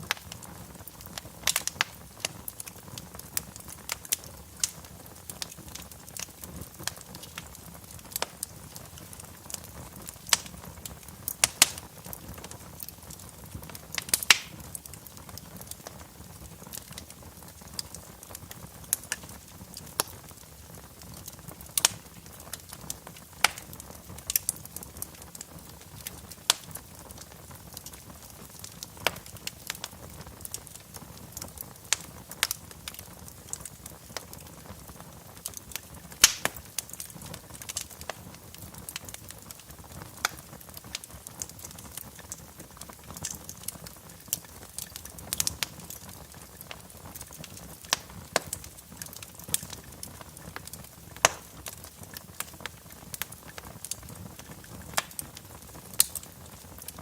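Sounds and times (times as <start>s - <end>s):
fire crackling in a fireplace: 0.0s - 57.0s.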